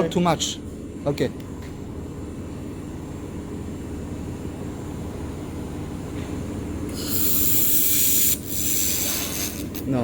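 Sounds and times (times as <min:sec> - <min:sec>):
shop machinery hum: 0:00.0 - 0:10.0
laser welder hum: 0:06.5 - 0:10.0.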